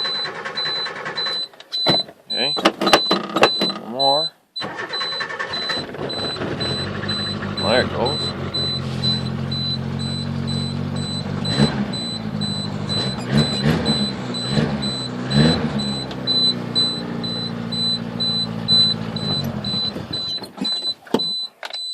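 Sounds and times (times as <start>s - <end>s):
high-pitched pulsing beep: 0.0s - 21.9s
car engine revving and idling: 5.5s - 20.7s.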